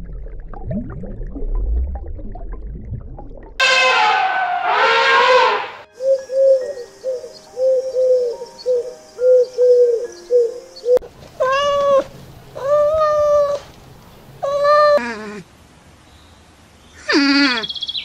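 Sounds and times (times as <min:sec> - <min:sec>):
cat meowing: 0:11.4 - 0:13.6.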